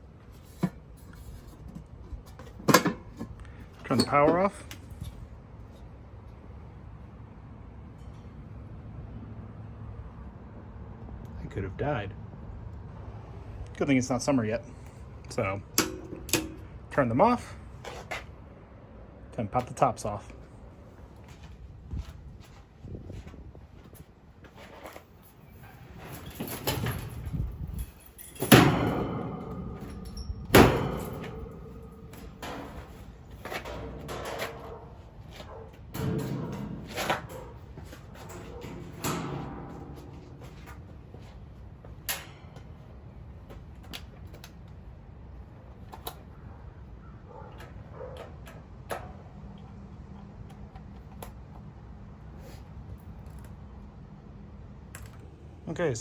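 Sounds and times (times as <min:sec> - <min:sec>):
sheet metal scraping and rattling: 0:24.6 - 0:42.8
loud ringing metal clanks: 0:25.7 - 0:35.1, 0:35.8 - 0:41.3.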